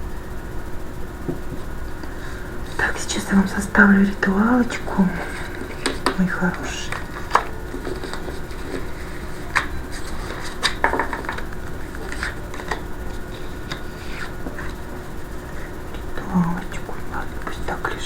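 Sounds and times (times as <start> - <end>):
faint steady hum: 0.0 - 18.0
cards clicking and tapping on table: 9.5 - 12.8.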